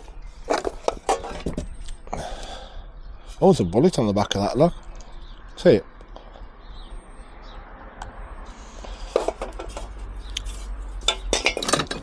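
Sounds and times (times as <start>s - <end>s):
metal scrap clinking in a box: 11.1s - 12.0s.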